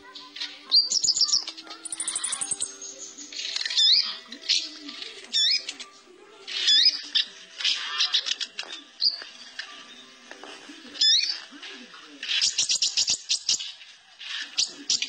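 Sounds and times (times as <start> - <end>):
small bird singing trills: 0.0 - 5.9, 11.0 - 11.5, 12.4 - 13.8.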